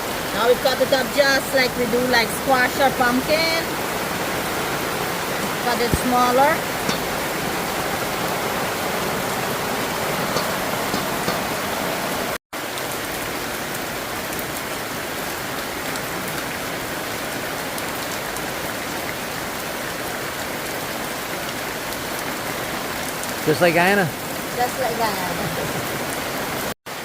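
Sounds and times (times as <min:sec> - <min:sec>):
heavy rain: 0:00.0 - 0:27.0.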